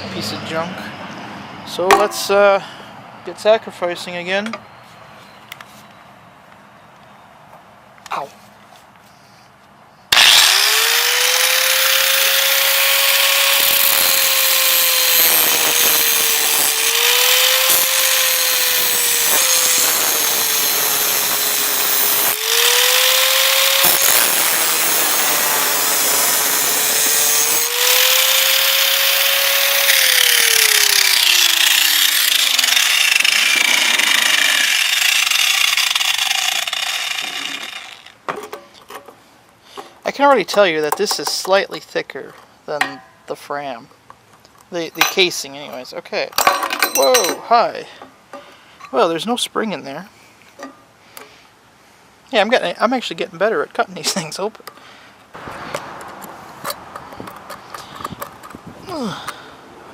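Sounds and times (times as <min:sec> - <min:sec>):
power tool cutting steel: 0:10.1 - 0:38.2.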